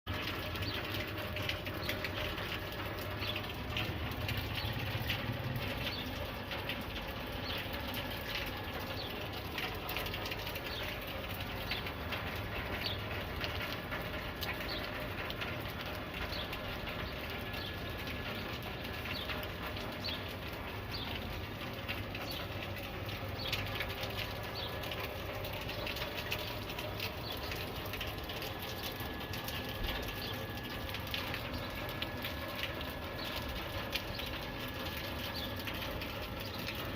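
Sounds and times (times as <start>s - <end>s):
birds chirping: 20.9s - 21.3s.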